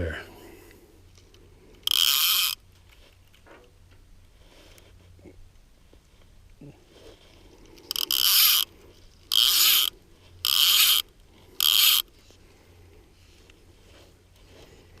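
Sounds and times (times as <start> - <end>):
fly reel buzzing: 1.8 - 2.6, 7.9 - 8.7, 9.3 - 12.1.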